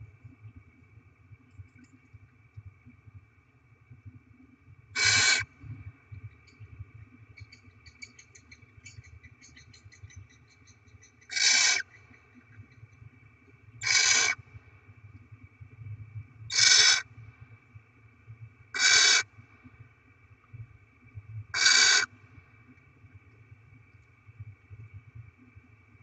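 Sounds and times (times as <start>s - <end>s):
owl harsh hissing calls: 5.0s - 5.5s, 11.3s - 11.9s, 13.8s - 14.4s, 16.5s - 17.1s, 18.8s - 19.3s, 21.5s - 22.1s.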